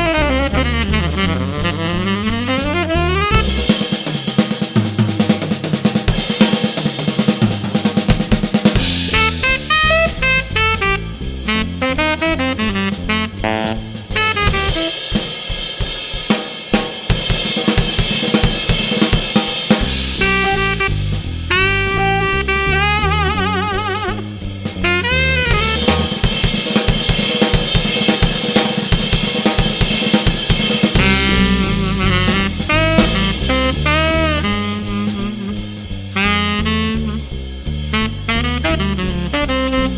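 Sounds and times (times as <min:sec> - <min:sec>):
walking bass line: 0:00.0 - 0:03.8, 0:08.0 - 0:15.0, 0:19.8 - 0:26.5, 0:30.7 - 0:39.9
saxophone phrases: 0:00.0 - 0:04.0, 0:08.8 - 0:15.4, 0:19.8 - 0:26.5, 0:30.9 - 0:39.9
drum kit playing swing: 0:00.0 - 0:39.9.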